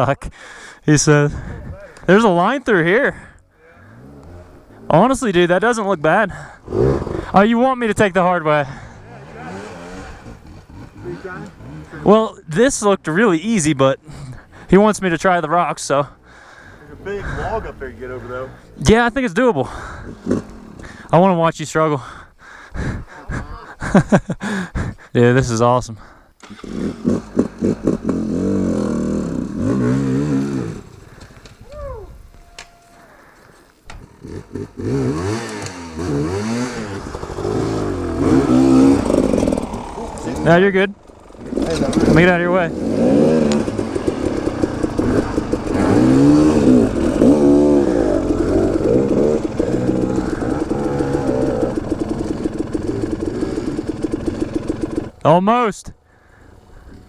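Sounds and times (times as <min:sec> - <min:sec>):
dirt bike engine revving: 0:02.1 - 0:21.1, 0:26.4 - 0:31.4, 0:34.0 - 0:55.4.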